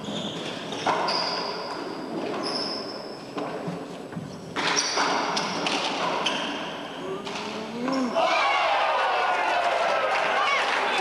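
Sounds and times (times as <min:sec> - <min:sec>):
shoes squeaking on floor: 0:00.0 - 0:08.2.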